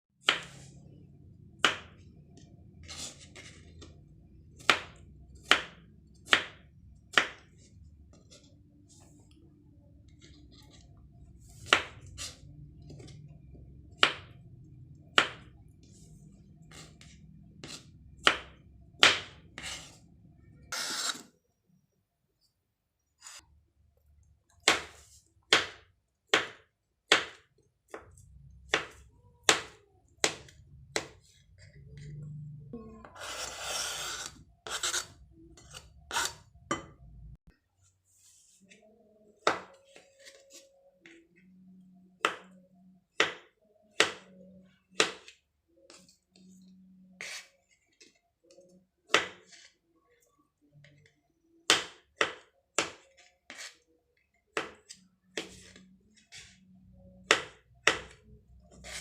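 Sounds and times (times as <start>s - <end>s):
knife chopping on a cutting board: 0.2s - 0.6s, 4.6s - 7.7s, 15.1s - 15.5s, 16.7s - 19.9s, 24.6s - 31.3s, 43.2s - 44.4s, 45.0s - 46.0s, 49.1s - 49.6s, 51.7s - 53.8s, 54.5s - 56.5s, 57.2s - 59.0s
knife scraping a board: 20.7s - 21.3s, 33.2s - 36.4s, 47.2s - 48.0s, 53.2s - 53.8s, 58.7s - 59.0s.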